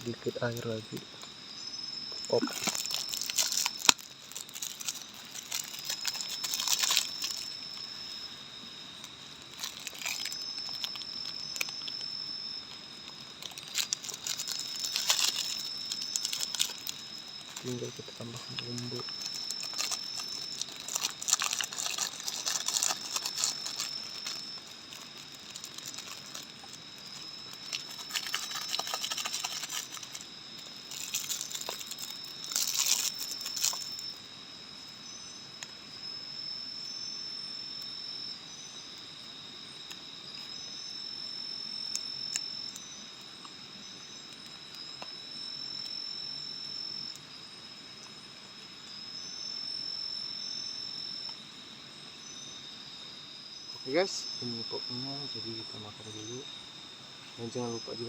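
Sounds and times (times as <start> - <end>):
crickets singing: 0.0 - 58.0
plastic sachets crinkling: 2.2 - 7.9, 9.0 - 12.0, 13.0 - 34.0.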